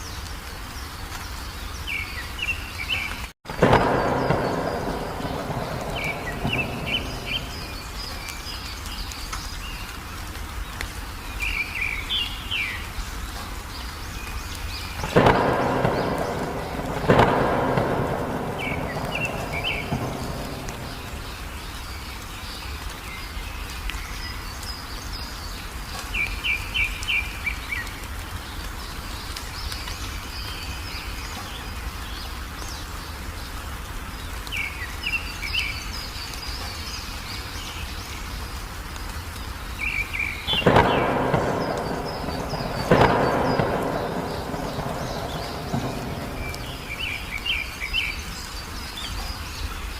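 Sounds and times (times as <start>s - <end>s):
songbird chirping: 0.0s - 49.9s
steady rain: 0.0s - 49.9s
thunderclaps rumbling: 3.5s - 9.1s, 14.9s - 22.2s, 40.1s - 48.4s.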